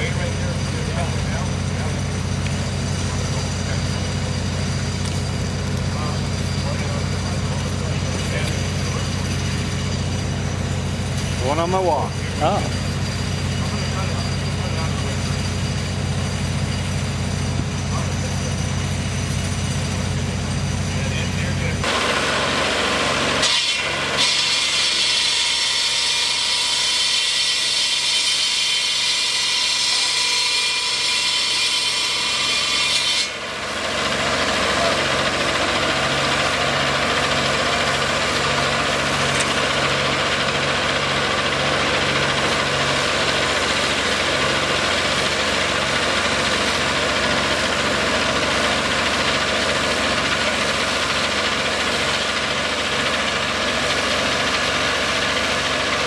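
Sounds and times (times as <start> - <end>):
engine idling: 0.0 - 24.2, 33.3 - 56.0
high even machinery hiss: 33.3 - 56.0.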